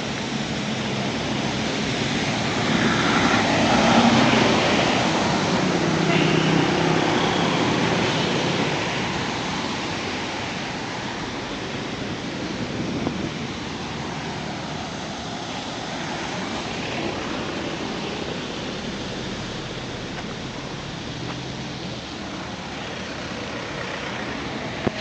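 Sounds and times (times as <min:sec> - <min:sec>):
road traffic rushing: 0:00.0 - 0:25.0
vehicle passing: 0:01.3 - 0:12.9.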